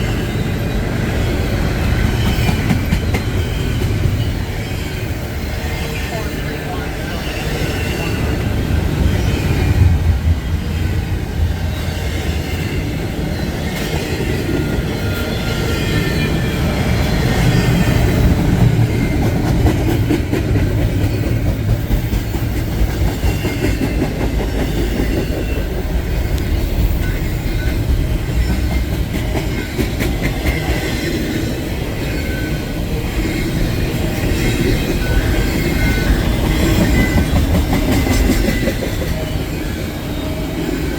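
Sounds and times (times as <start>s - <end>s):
train wheels rumbling on rail: 0.0s - 40.9s
wheels squealing: 20.6s - 40.9s.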